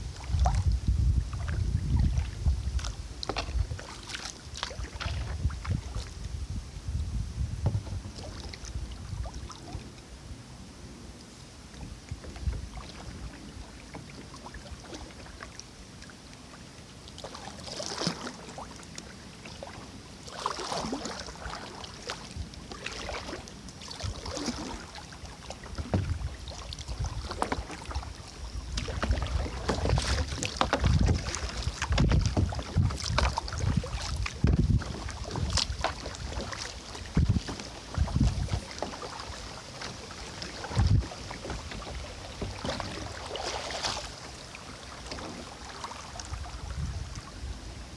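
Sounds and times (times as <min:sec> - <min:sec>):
paddle splashing in water: 0:00.0 - 0:06.4, 0:07.4 - 0:10.2, 0:11.6 - 0:47.9
wind buffeting microphone: 0:00.0 - 0:09.8, 0:25.7 - 0:43.8, 0:46.2 - 0:47.9.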